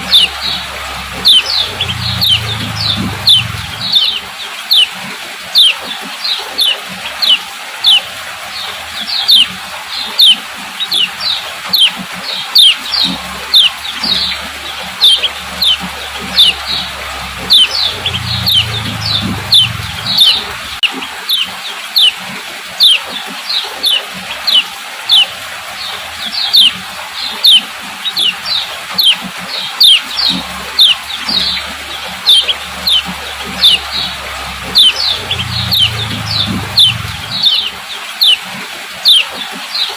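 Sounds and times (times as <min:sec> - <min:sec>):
bird chirping call: 0:00.0 - 0:05.0, 0:05.6 - 0:22.2, 0:22.8 - 0:39.9
faint low rumble: 0:31.6 - 0:37.7.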